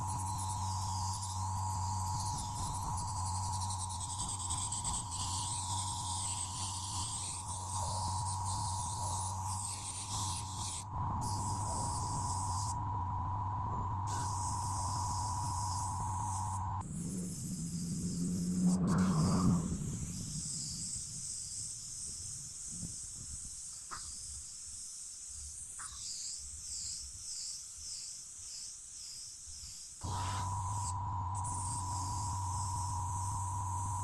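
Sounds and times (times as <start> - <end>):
small electric motor humming: 0.0 - 34.0
shifting hiss: 29.9 - 34.0.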